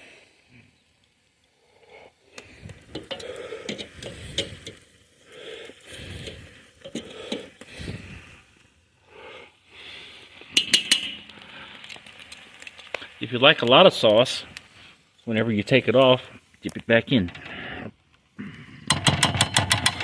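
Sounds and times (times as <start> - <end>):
metal tongs clicking and scraping: 2.4 - 4.8, 6.1 - 7.5, 10.6 - 12.4.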